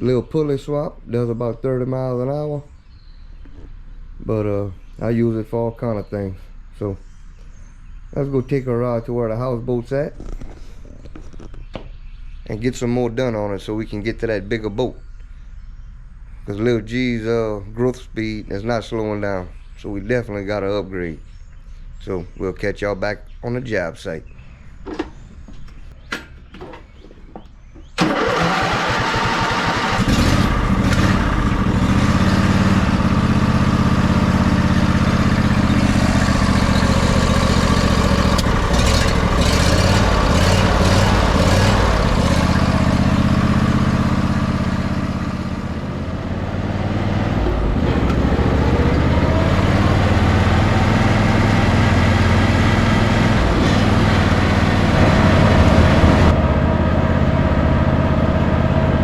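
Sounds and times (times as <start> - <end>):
riding lawnmower engine: 27.8 - 59.0.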